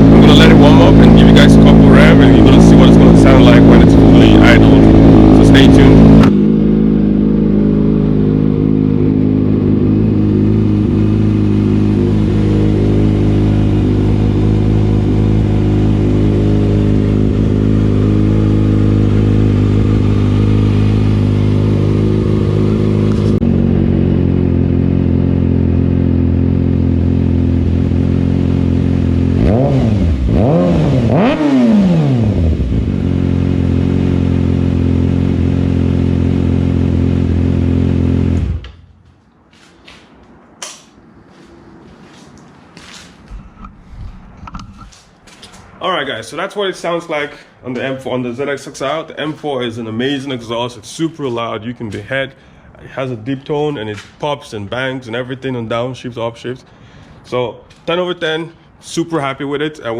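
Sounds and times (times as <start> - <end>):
motorcycle engine idling: 0.0 - 29.4
motorcycle throttle blips: 0.0 - 45.8.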